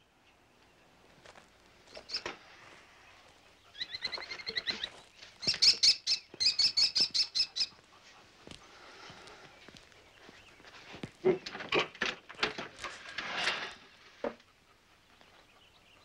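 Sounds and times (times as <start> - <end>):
bird chattering and chirping: 1.9 - 2.3, 3.6 - 7.8.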